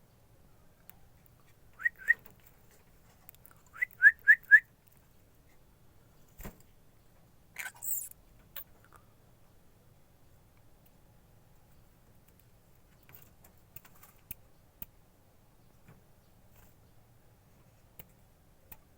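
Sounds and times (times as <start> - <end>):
whistled chirps: 1.8 - 2.2, 3.7 - 4.7.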